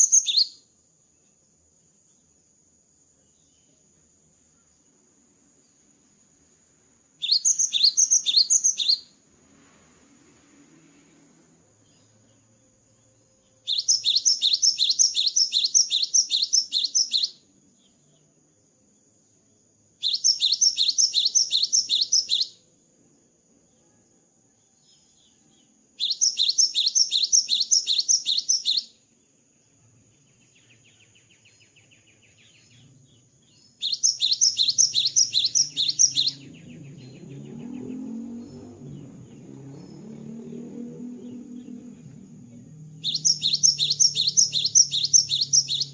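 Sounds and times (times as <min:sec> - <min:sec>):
low rumbling noise: 0:35.9 - 0:45.2.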